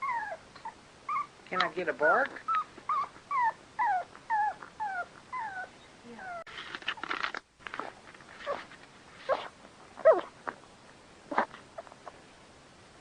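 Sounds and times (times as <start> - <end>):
dog whimpering: 0.0 - 1.3, 2.4 - 6.5, 7.8 - 10.4
rustling scuffle: 6.5 - 10.2.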